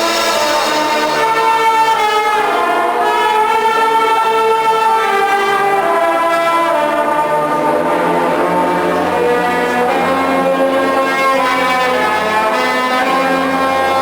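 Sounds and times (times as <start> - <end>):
brass section holding chords: 0.0 - 3.6.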